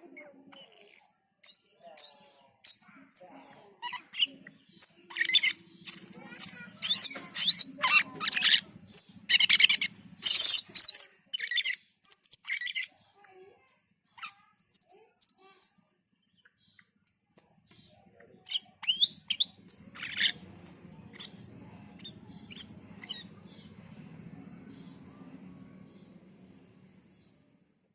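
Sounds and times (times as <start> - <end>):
bird harsh squawks and chirps: 0.5 - 15.9, 16.6 - 23.8
faint low hum: 16.0 - 27.9.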